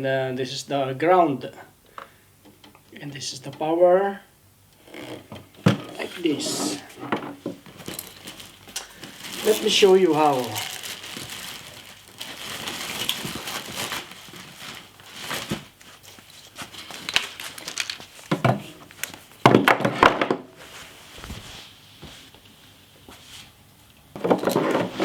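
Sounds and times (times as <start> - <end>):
handling clunks and knocks: 5.2 - 8.2
plastic crinkling: 7.6 - 19.4.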